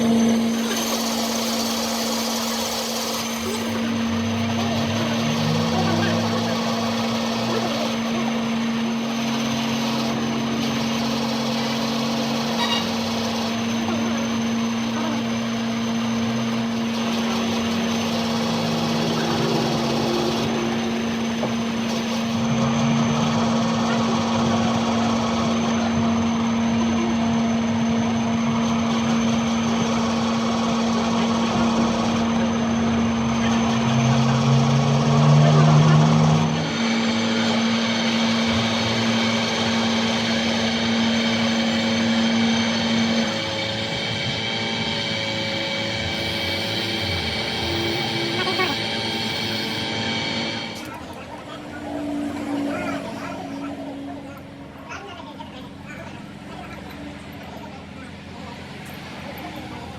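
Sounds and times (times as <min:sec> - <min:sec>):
machine humming: 0:00.0 - 0:59.9
low tones: 0:33.6 - 0:56.0.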